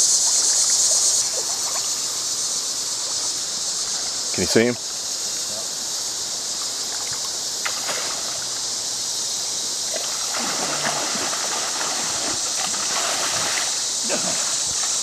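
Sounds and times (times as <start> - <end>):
water running over rocks: 6.3 - 15.0.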